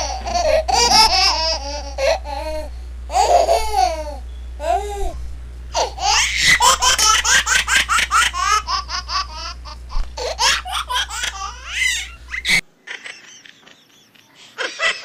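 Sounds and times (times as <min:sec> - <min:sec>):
low steady hum: 0:00.0 - 0:12.8
high-pitched laughter: 0:10.2 - 0:15.0.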